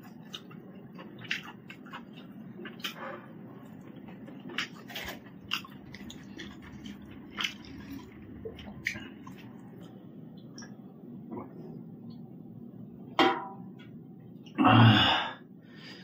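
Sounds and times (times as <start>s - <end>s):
person chewing food: 0.0s - 11.8s.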